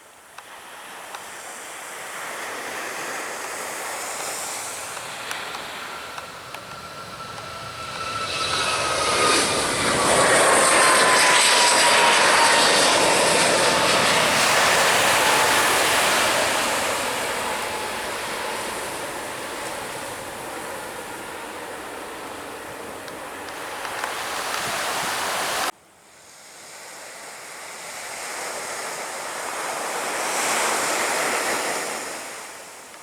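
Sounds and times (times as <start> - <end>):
jet airliner passing: 2.1 - 25.7.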